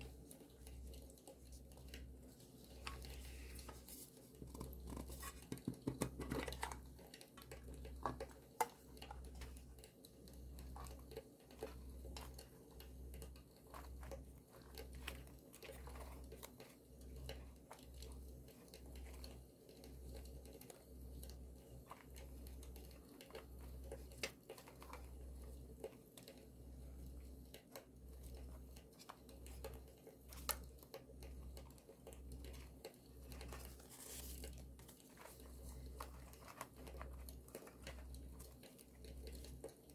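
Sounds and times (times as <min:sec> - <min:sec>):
paper rustling and crinkling: 0:00.2 - 0:09.6, 0:32.5 - 0:39.9.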